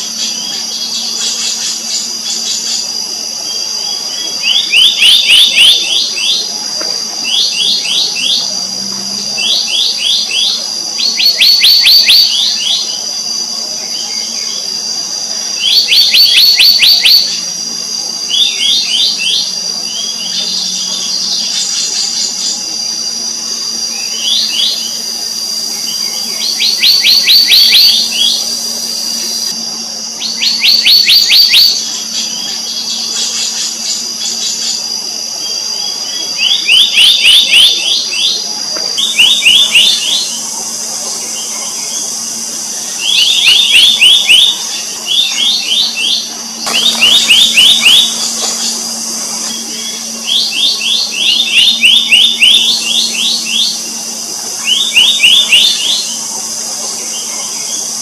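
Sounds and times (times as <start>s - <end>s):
steady high drone: 0.0s - 58.0s
bird calling with ringing notes: 23.7s - 34.8s, 35.5s - 58.0s.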